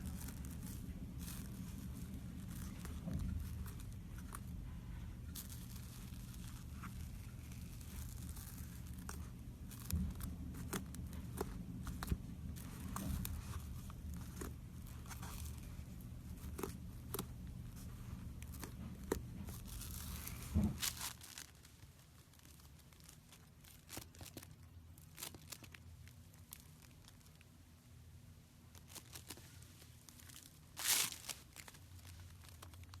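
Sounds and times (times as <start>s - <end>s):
slime crackling and popping: 5.3s - 27.4s.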